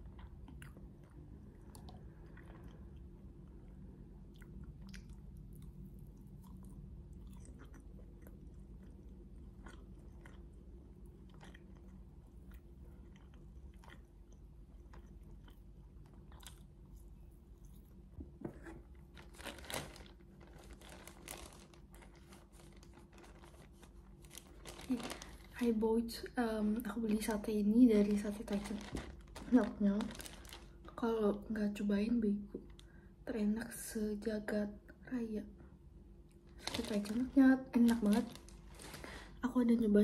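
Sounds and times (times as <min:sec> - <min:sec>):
chewing and biting: 0:00.0 - 0:18.1.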